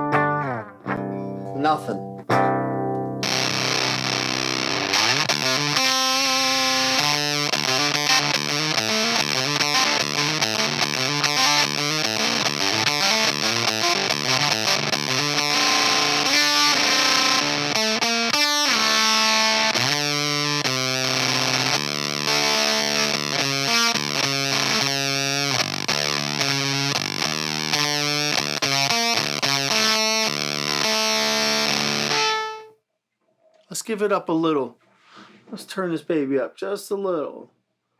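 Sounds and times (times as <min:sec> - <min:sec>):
fuzzed electric guitar riff: 0:00.0 - 0:32.7.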